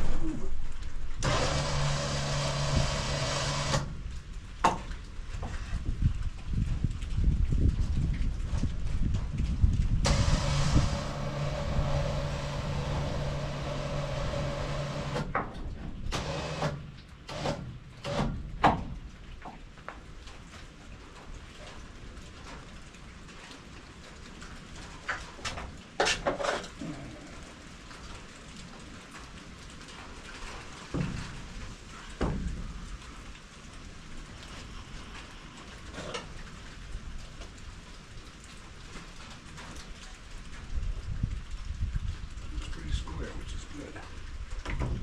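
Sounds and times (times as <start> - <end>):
sawmill engine running: 1.2 - 4.0, 10.0 - 15.4, 16.1 - 18.3
clunks and knocks: 4.6 - 5.6, 10.1 - 19.0, 44.6 - 45.0.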